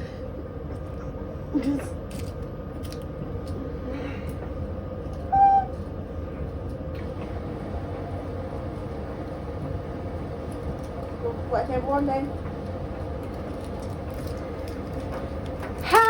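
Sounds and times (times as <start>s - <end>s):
high-pitched hoot: 5.3s - 5.8s.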